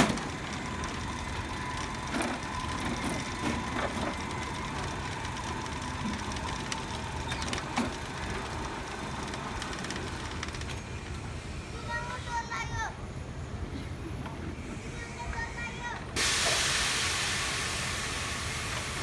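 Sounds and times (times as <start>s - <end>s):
electric ride-on train rumbling: 0.0s - 19.0s.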